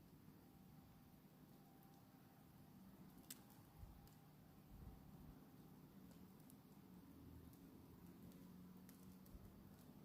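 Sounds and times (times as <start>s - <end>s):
campfire crackle: 0.0s - 10.0s
soft ticks: 3.1s - 4.2s, 7.4s - 10.0s.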